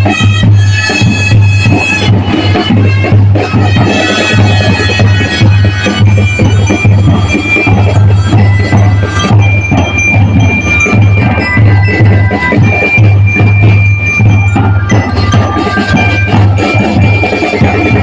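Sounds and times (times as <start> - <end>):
high brass notes: 0.0 - 9.2
bass drum beat: 0.0 - 18.0.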